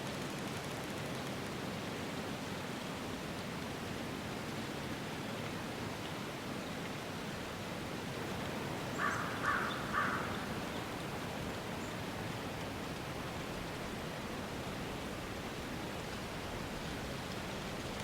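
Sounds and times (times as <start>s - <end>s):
rushing outdoor background noise: 0.0s - 18.0s
crow cawing: 8.9s - 10.7s.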